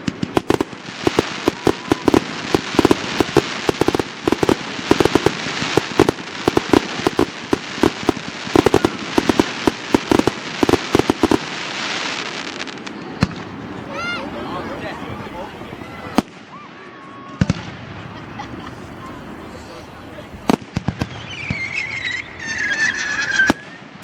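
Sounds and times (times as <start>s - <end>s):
fireworks bursts and bangs: 0.0s - 14.1s, 15.1s - 24.0s
continuous crackling hiss: 0.0s - 24.0s.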